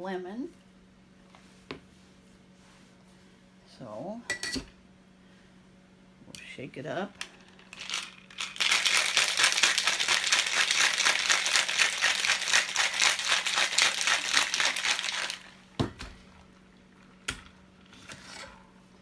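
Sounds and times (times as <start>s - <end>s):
cocktail shaker rattling: 7.3s - 15.6s.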